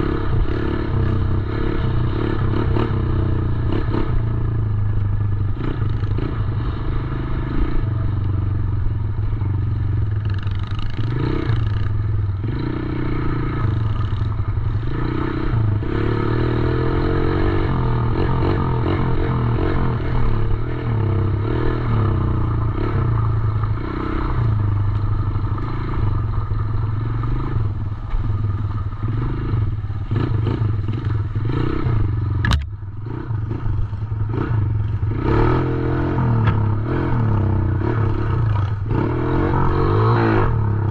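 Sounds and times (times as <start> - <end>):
dirt bike engine revving: 10.1 - 40.9
sharp click: 32.4 - 32.8.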